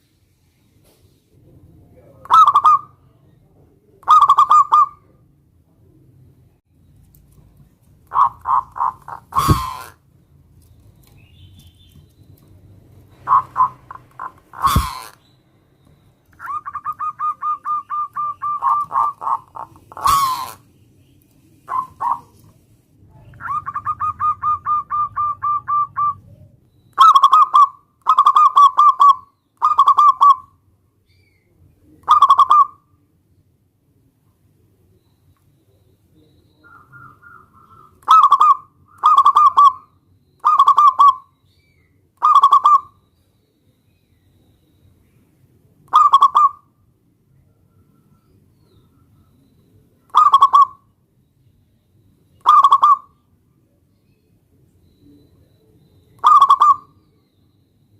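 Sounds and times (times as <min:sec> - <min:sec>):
dove cooing staccato notes: 0:02.2 - 0:03.0, 0:04.0 - 0:05.2, 0:08.0 - 0:10.0, 0:13.1 - 0:15.2, 0:16.4 - 0:20.6, 0:21.7 - 0:22.4, 0:23.4 - 0:26.4, 0:27.0 - 0:30.5, 0:32.0 - 0:32.8, 0:36.6 - 0:41.3, 0:42.2 - 0:43.0, 0:45.9 - 0:46.7, 0:50.0 - 0:50.9, 0:52.4 - 0:53.1, 0:56.2 - 0:57.0.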